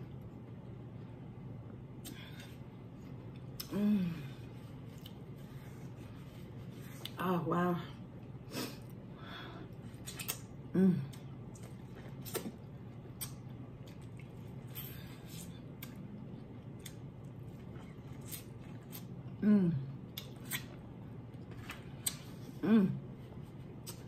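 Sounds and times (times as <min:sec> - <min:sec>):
person humming mm: 0:03.6 - 0:04.5, 0:10.7 - 0:11.3, 0:19.4 - 0:20.0, 0:22.6 - 0:23.1
corn crunching while chewed: 0:11.5 - 0:19.4.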